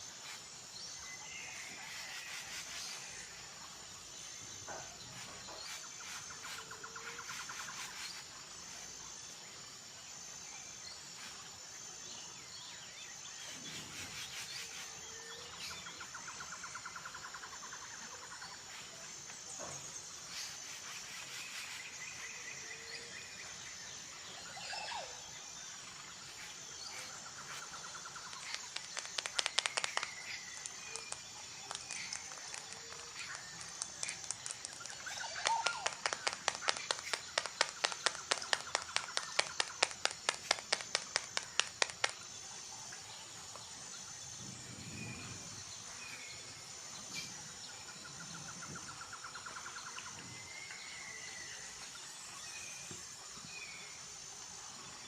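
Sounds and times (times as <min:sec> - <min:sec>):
insect chirping: 0:00.0 - 0:55.0
sharp clicks: 0:28.2 - 0:42.2.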